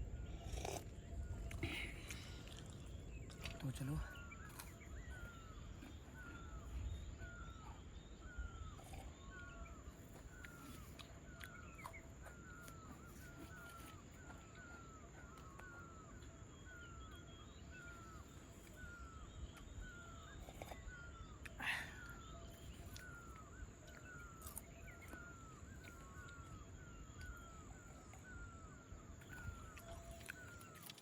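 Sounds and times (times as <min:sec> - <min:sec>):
steady high-pitched whine: 0:00.0 - 0:31.0
animal chirping calls: 0:03.4 - 0:31.0.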